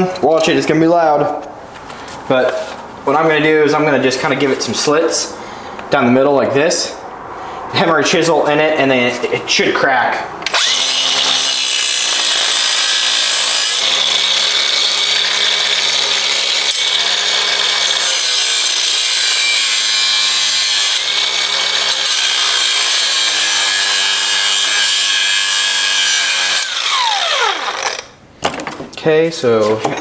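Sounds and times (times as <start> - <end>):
cut-off wheel grinding metal: 10.4 - 28.1
tool spinning down whine: 26.5 - 28.1.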